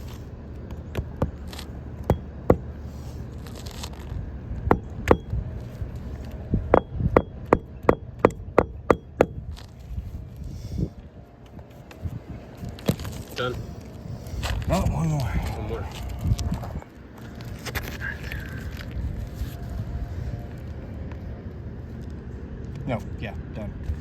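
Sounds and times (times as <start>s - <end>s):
hammer striking roofing nails: 0.8s - 2.8s, 4.7s - 5.3s, 6.7s - 9.4s.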